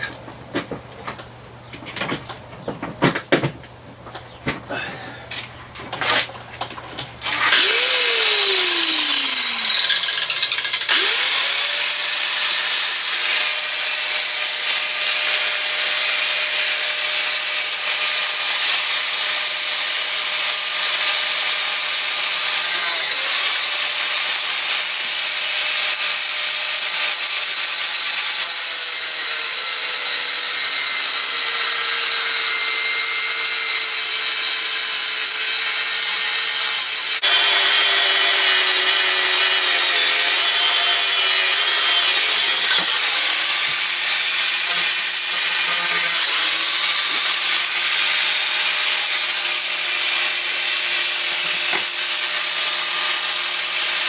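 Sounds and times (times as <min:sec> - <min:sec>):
angle grinder motor whine: 0:07.2 - 0:54.0
grinder cutting steel hiss: 0:07.3 - 0:54.0.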